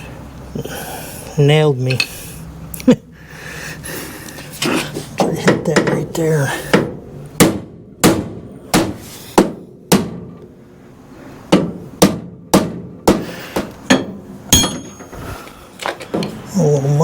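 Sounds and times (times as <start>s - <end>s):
hammer striking metal: 11.5s - 15.1s.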